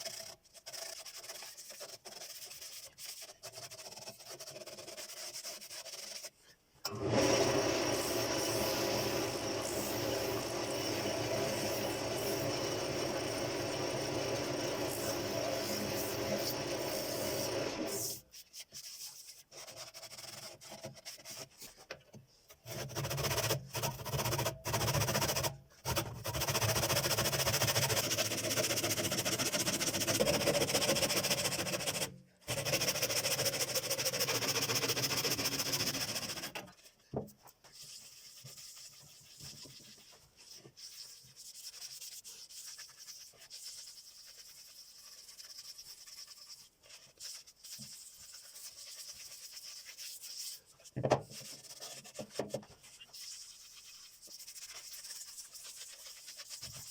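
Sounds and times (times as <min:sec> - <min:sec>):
rubbing on wooden bowl: 0:00.0 - 0:06.5, 0:37.6 - 0:56.9.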